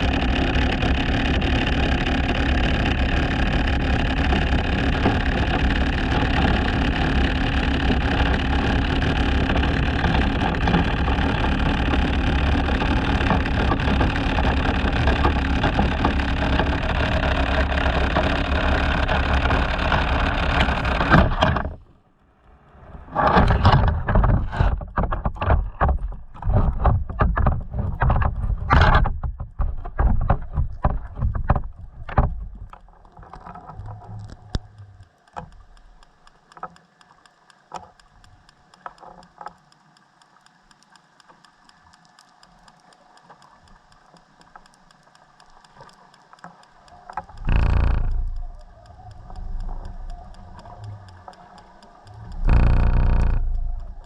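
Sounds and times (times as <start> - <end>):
motorboat engine: 0.0 - 35.7, 46.6 - 54.0
water and wind rushing: 0.0 - 39.6, 41.0 - 54.0.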